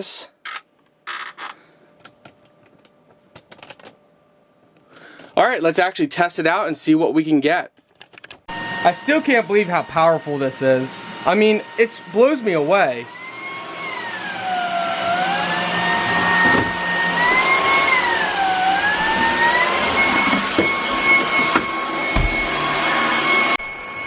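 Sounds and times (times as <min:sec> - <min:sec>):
small clicks: 0:07.8 - 0:08.5
stick vacuum motor whine: 0:08.5 - 0:24.0.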